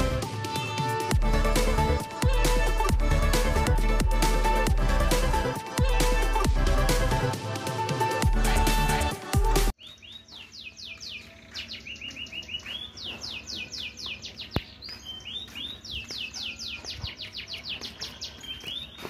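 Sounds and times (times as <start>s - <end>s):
music: 0.0s - 9.8s
songbird singing: 9.8s - 19.0s.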